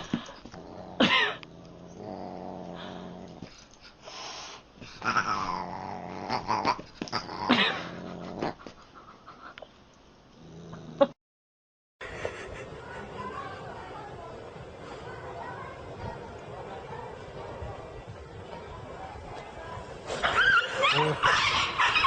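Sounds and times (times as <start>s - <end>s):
cat growling and meowing: 5.0s - 8.6s.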